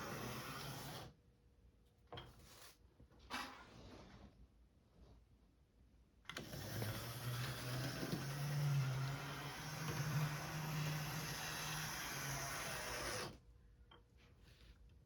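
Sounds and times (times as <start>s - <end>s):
model train motor hum: 6.4s - 13.3s.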